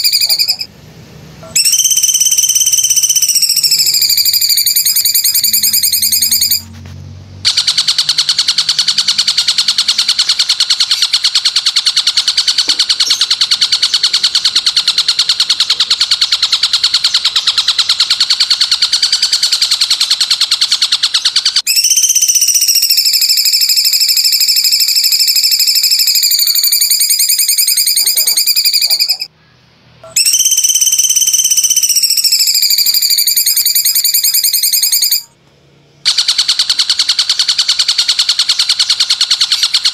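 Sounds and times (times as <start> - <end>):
high-pitched buzzing call: 0.0 - 0.7, 1.4 - 6.8, 7.4 - 29.3, 30.0 - 35.4.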